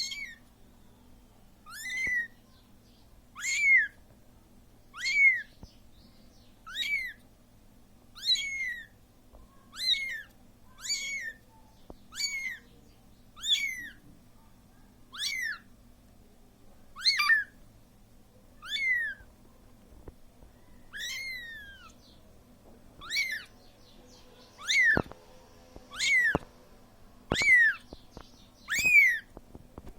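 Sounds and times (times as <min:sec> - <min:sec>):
kitten meowing: 0:00.0 - 0:00.4, 0:01.7 - 0:02.4, 0:03.4 - 0:04.0, 0:04.9 - 0:05.5, 0:06.7 - 0:07.2, 0:08.2 - 0:08.9, 0:09.7 - 0:11.4, 0:12.1 - 0:12.7, 0:13.4 - 0:14.0, 0:15.1 - 0:15.7, 0:17.0 - 0:17.5, 0:18.6 - 0:19.2, 0:20.9 - 0:22.0, 0:23.0 - 0:23.5, 0:24.6 - 0:25.2, 0:25.9 - 0:26.5, 0:27.3 - 0:27.9, 0:28.7 - 0:29.3.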